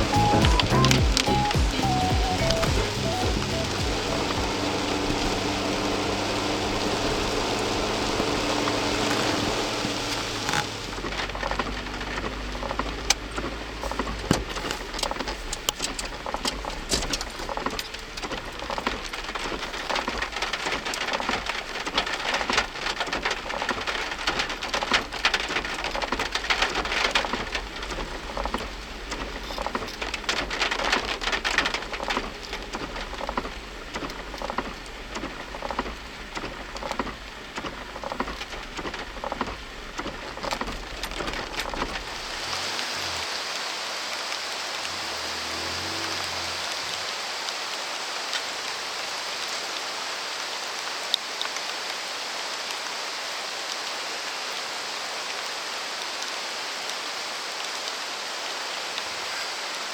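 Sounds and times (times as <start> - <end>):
low steady rumble: 0.0 - 17.4
heavy rain falling: 0.0 - 59.9.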